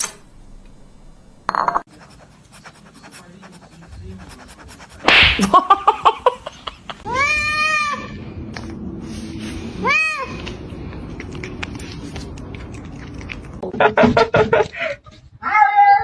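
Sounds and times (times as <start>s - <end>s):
cat noisy burst: 5.0s - 5.8s.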